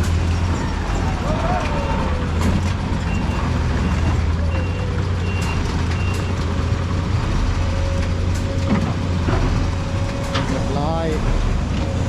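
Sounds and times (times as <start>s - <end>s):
diesel truck engine rumbling: 0.0s - 12.0s
reversing alarm beeping: 1.7s - 6.3s.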